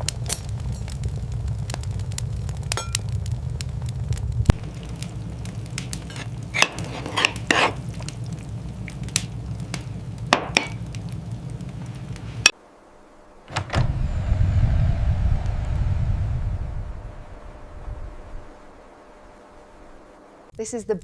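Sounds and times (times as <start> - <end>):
low rumble: 0.0 - 6.6, 13.5 - 20.5.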